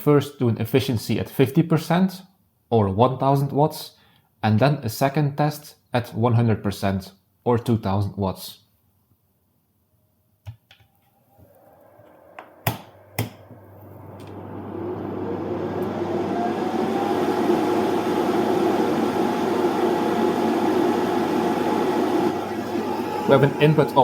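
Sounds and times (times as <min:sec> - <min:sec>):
fan whirring: 0:11.3 - 0:24.0.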